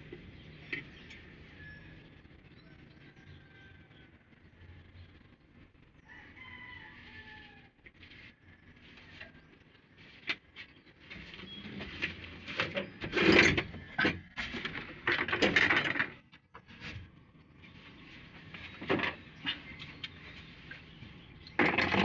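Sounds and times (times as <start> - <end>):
rooster crowing: 2.6 - 4.4, 6.0 - 7.8.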